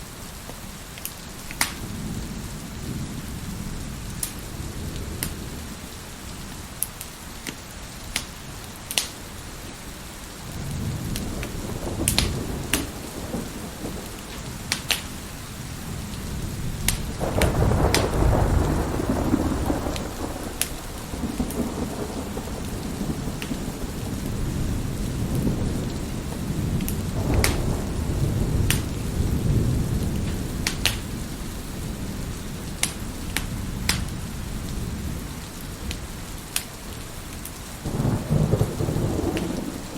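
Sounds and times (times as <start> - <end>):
heavy rain: 0.0 - 39.9
wood fire crackling and popping: 1.0 - 1.8, 4.2 - 4.4, 6.8 - 9.3, 11.1 - 15.3, 16.8 - 22.0, 23.3 - 23.6, 25.2 - 27.7, 28.6 - 29.0, 30.0 - 31.2, 32.6 - 34.2, 35.9 - 37.5
rolling thunder: 1.7 - 6.5, 10.4 - 36.3, 37.8 - 39.9.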